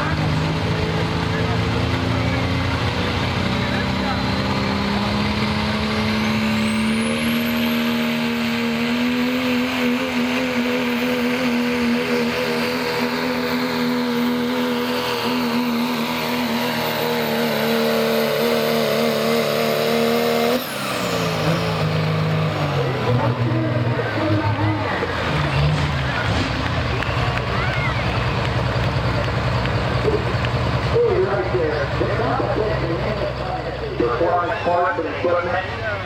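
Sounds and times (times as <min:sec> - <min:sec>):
diesel truck engine at full throttle: 0:00.0 - 0:36.0
turbocharger whistle: 0:05.9 - 0:12.6.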